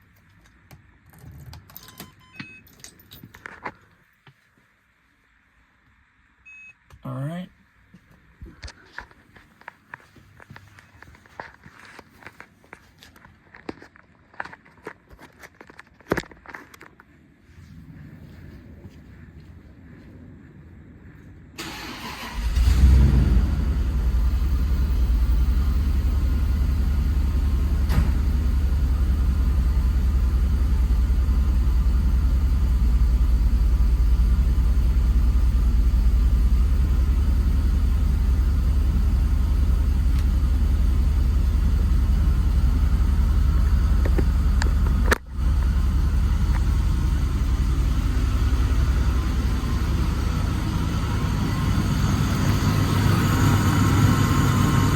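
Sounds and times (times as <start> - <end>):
car engine idling deeply: 22.1 - 54.9.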